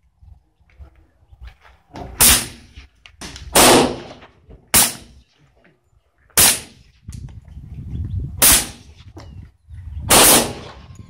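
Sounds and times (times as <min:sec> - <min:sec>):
suppressed pistol shots: 0:02.2 - 0:02.6, 0:03.5 - 0:05.2, 0:06.4 - 0:06.8, 0:08.4 - 0:08.8, 0:10.1 - 0:10.8.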